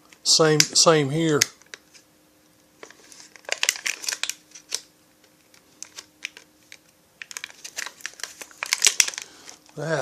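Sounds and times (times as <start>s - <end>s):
packaging crinkling: 2.8s - 9.9s.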